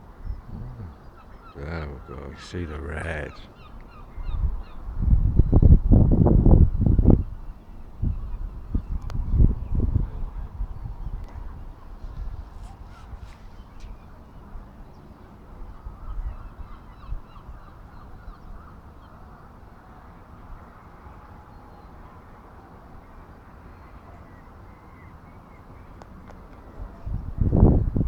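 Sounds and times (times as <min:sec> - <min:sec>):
distant birds calling: 0:00.0 - 0:04.9
steady low rumble: 0:00.4 - 0:01.0.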